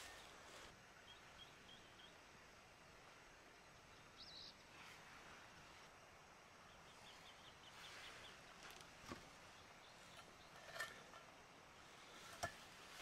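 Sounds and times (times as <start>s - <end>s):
small bird chirping: 1.0s - 2.2s, 3.9s - 4.6s, 6.7s - 8.6s.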